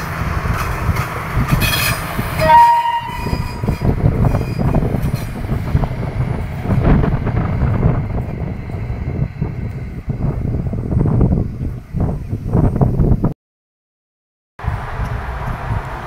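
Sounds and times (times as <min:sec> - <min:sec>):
train rumbling on track: 0:00.0 - 0:13.3, 0:14.6 - 0:16.0
train horn blast: 0:01.6 - 0:03.8.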